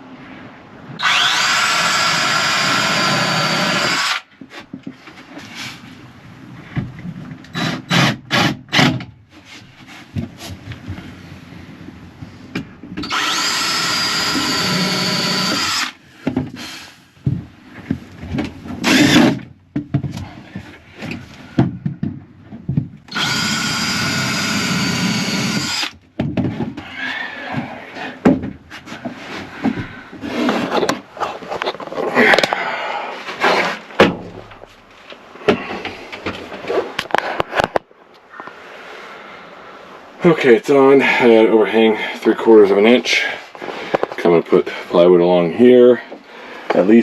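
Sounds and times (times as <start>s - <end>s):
power drill driving screws: 1.0s - 4.3s, 7.5s - 8.9s, 13.0s - 16.0s, 18.8s - 19.4s, 23.1s - 26.0s
knocks of wood being handled: 17.2s - 23.1s, 25.9s - 32.6s, 33.4s - 37.8s.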